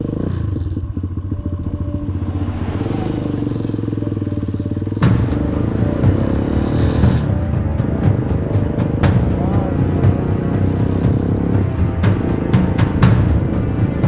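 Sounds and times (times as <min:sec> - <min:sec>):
motorcycle engine running: 0:00.0 - 0:14.0
sudden sharp hit: 0:01.6 - 0:08.1.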